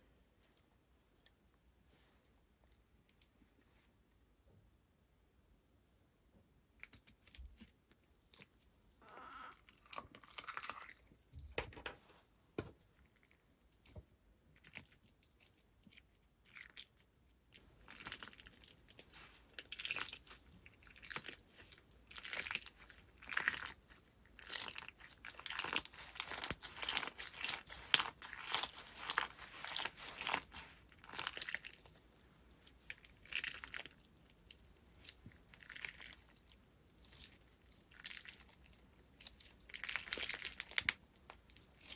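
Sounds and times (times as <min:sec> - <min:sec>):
slime squishing and crackling: 0:13.7 - 0:41.9.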